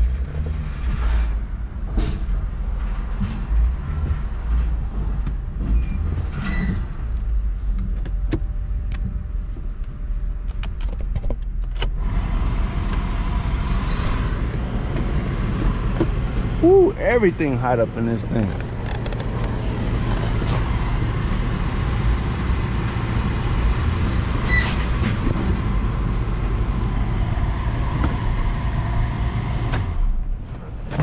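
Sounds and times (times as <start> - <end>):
car cabin low rumble: 6.9 - 31.0
mid-pitched hum: 12.1 - 30.7
clicks and knocks: 18.4 - 20.7.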